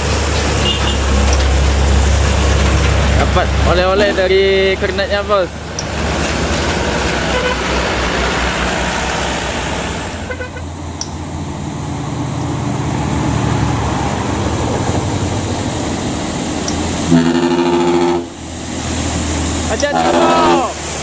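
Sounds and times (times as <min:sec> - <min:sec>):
diesel truck engine under load: 0:00.0 - 0:21.0
road and traffic noise: 0:00.0 - 0:21.0.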